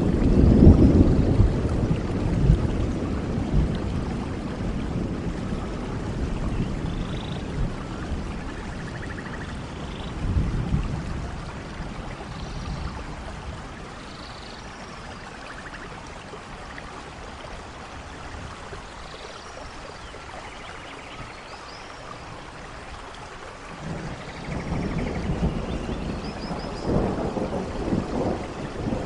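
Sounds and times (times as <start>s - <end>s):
thunder rumbling: 0.0s - 14.0s, 23.7s - 29.0s
steady rain in forest: 0.0s - 29.0s.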